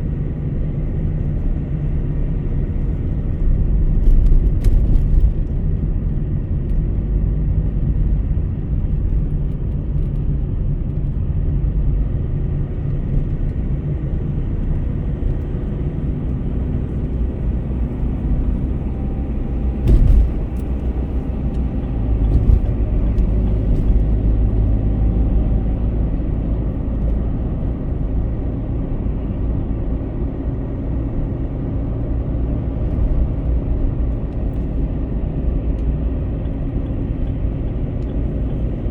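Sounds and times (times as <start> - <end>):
car driving on highway: 0.0 - 38.9
short thumps: 19.7 - 21.0.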